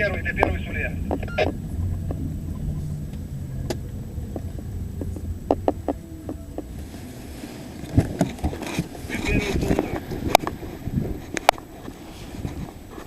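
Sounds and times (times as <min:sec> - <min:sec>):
vehicle running low rumble: 0:00.0 - 0:13.0.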